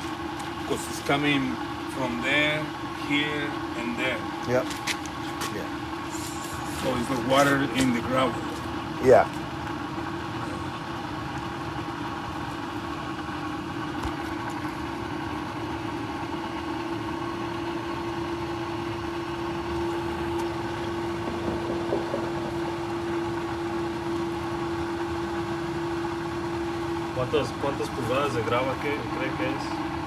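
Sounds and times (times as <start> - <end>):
motor humming steadily: 0.0 - 30.0.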